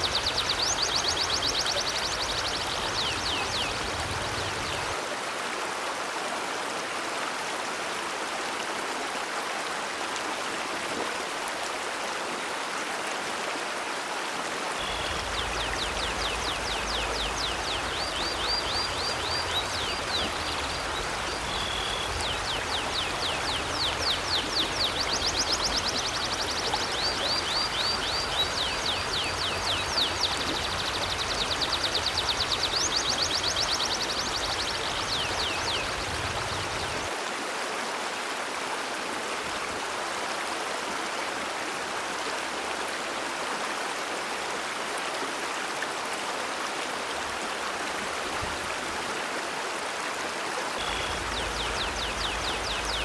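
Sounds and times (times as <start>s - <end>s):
river water flowing: 0.0s - 53.0s
bird chirping: 14.8s - 36.0s, 50.8s - 53.0s.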